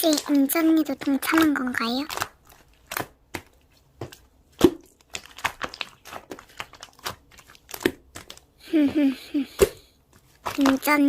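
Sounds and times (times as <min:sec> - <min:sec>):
slime clicking and popping: 0:00.0 - 0:08.6.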